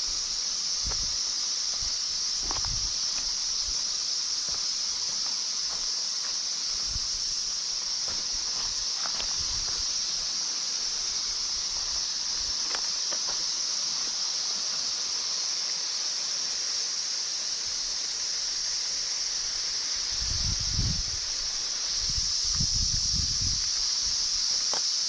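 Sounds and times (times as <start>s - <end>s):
high-pitched hiss: 0.0s - 25.0s
low wind rumble: 1.8s - 3.0s, 20.2s - 23.6s.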